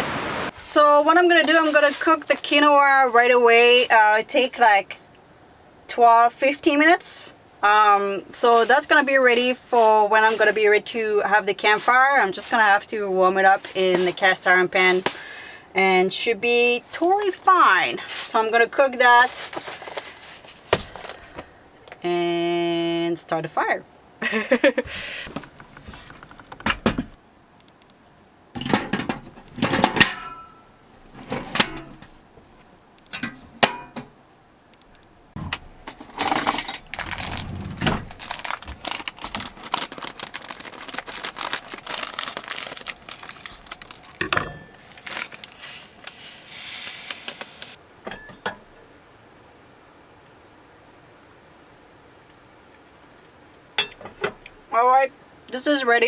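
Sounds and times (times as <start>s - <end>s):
brief hiss: 0.0s - 0.6s, 45.6s - 47.8s
rustling: 0.0s - 2.6s, 8.4s - 15.4s, 18.0s - 21.5s, 24.8s - 27.2s, 34.9s - 47.8s
cookware clinking and clattering: 28.6s - 30.6s, 33.2s - 34.1s, 44.2s - 44.9s, 48.1s - 48.7s.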